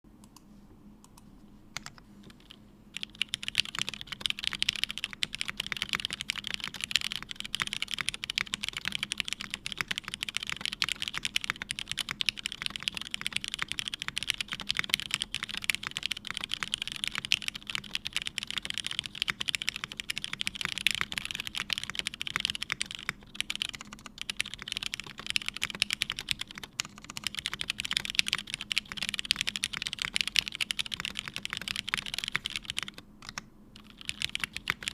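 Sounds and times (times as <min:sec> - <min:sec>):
mechanical keyboard typing: 0:01.8 - 0:34.9.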